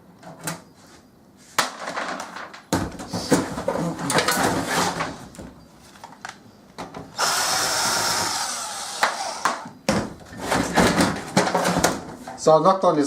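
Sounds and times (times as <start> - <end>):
power drill running: 7.2 - 9.7.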